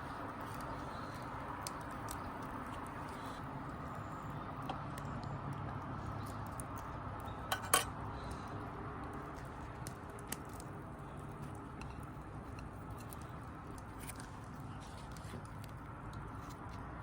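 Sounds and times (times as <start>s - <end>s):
utensils clinking: 7.5s - 7.9s.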